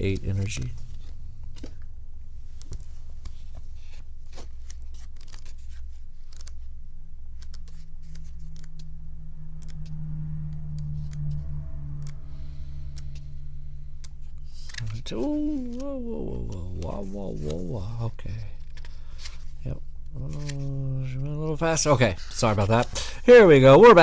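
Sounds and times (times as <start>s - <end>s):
steady low hum: 0.0s - 24.0s
cards clicking and rustling: 0.1s - 8.8s, 14.5s - 24.0s.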